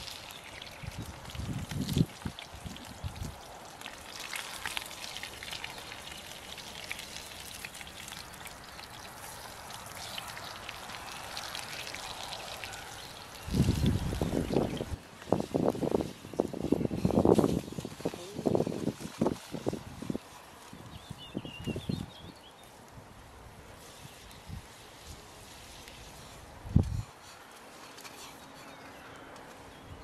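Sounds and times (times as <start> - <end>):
rain falling in drops: 0.0 - 22.3
wind gusts on microphone: 0.7 - 3.5, 11.4 - 27.2.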